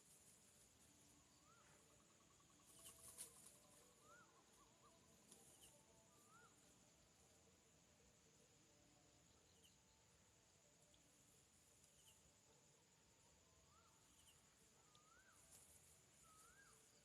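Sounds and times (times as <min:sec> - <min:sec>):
insect hum: 0:00.0 - 0:17.0
faint bird whistles: 0:01.2 - 0:06.8, 0:13.6 - 0:17.0.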